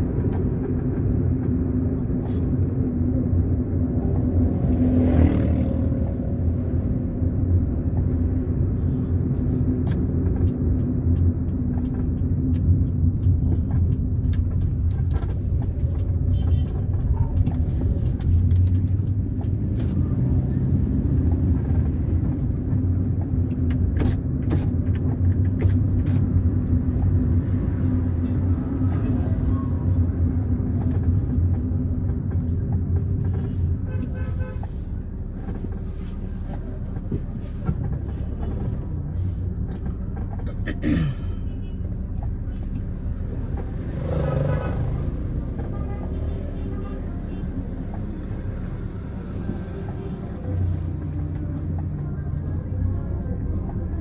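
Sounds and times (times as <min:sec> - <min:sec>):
car engine and tyre drone: 0:00.0 - 0:54.0
knocks and rattles from road: 0:00.0 - 0:54.0.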